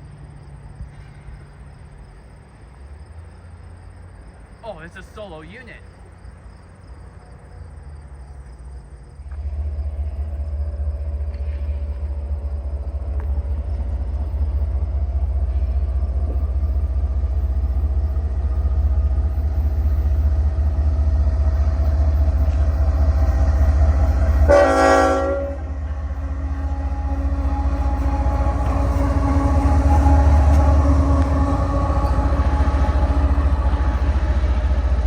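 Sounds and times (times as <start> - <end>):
locomotive engine rumble: 0.0 - 35.0
train air horn blast: 24.3 - 34.7.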